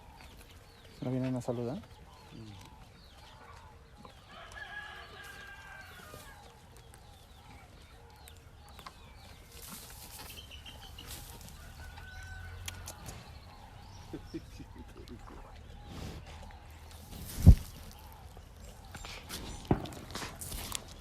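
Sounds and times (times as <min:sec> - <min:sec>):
chickens clucking: 0:00.0 - 0:20.9
rooster crowing: 0:11.5 - 0:13.2.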